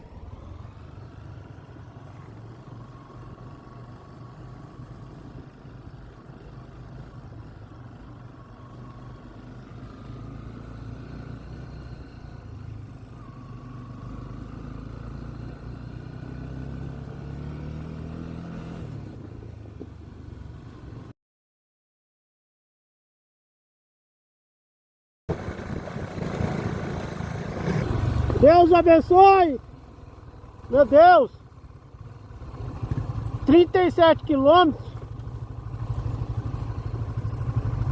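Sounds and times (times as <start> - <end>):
motorcycle engine running: 25.3 - 37.9.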